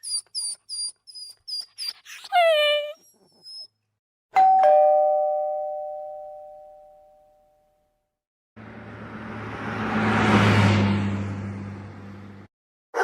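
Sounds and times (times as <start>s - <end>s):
two-tone doorbell chime: 4.4s - 8.0s
vehicle engine: 8.6s - 12.5s.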